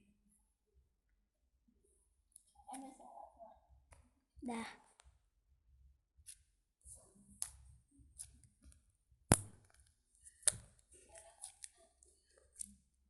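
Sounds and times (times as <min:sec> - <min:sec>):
soft slime crackles: 0:09.8 - 0:13.0.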